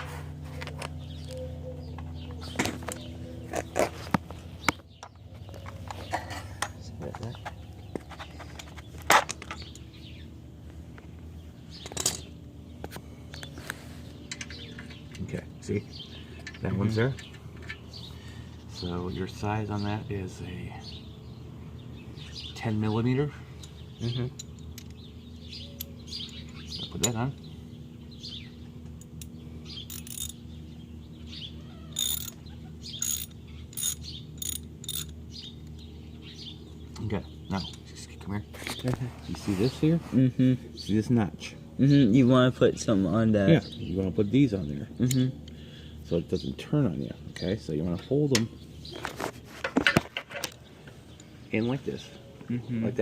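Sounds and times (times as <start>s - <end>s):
steady low hum: 0.0s - 53.0s
metal tools rattling: 11.8s - 12.3s, 14.2s - 15.4s, 16.2s - 17.9s, 28.9s - 30.4s, 31.9s - 35.8s
metal tools clicking: 14.3s - 15.3s, 28.8s - 30.4s, 31.9s - 35.9s.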